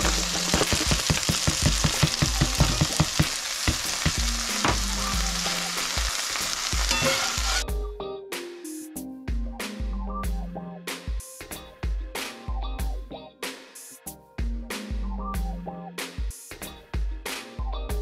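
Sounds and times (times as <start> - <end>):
food sizzling in hot oil: 0.0 - 7.7.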